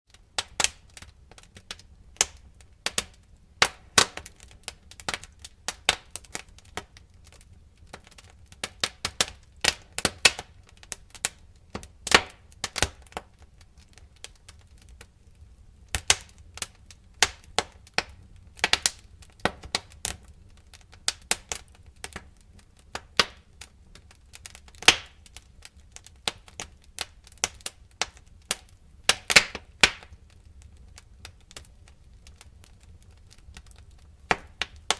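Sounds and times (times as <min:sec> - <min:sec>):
fire crackling: 0:00.1 - 0:34.9.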